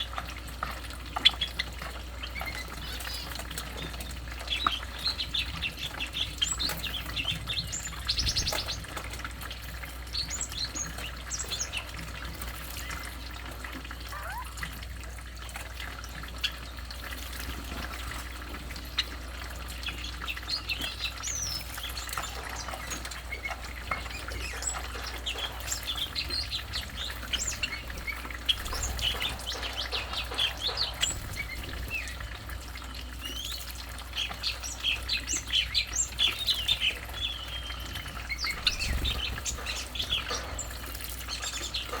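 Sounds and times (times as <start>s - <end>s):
bird chirping: 14.1s - 14.6s, 18.9s - 42.0s.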